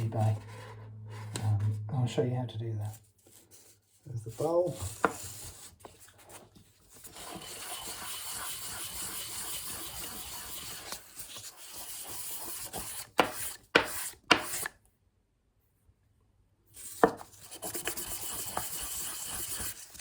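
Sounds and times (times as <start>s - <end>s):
rubbing on sandpaper: 3.3s - 14.7s, 16.8s - 20.0s.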